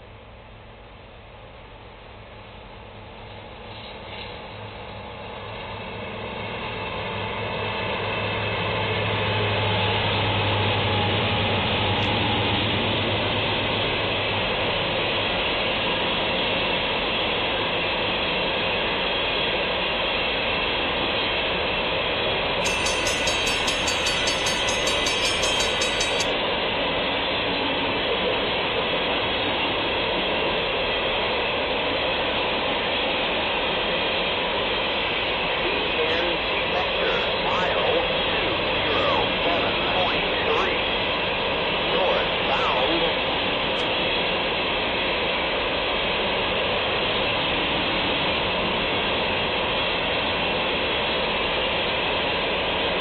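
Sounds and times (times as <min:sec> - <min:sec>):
diesel locomotive engine drone: 0:00.0 - 0:53.0
freight cars rolling on rails: 0:22.6 - 0:26.4.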